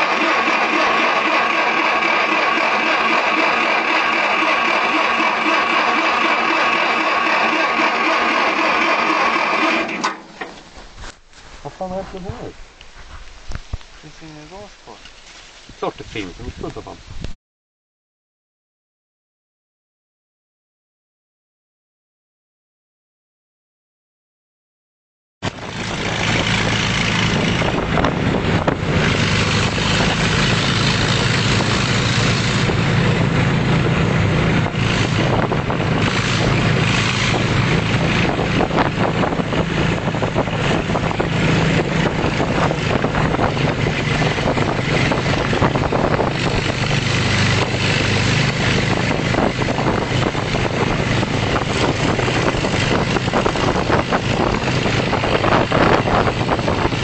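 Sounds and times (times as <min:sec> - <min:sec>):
tractor engine running: 0:00.0 - 0:12.9, 0:25.4 - 0:57.0.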